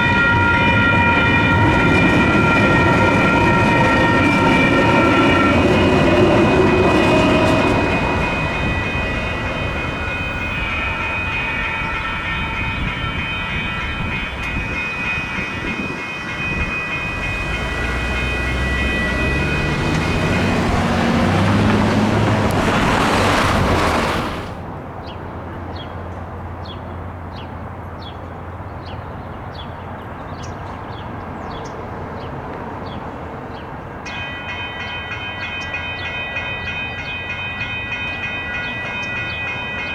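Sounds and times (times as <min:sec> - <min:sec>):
crossing bells ringing: 0:00.0 - 0:24.5, 0:33.5 - 0:39.9
wheel and rail noise: 0:00.0 - 0:26.5
electric train motor whine: 0:16.5 - 0:23.5.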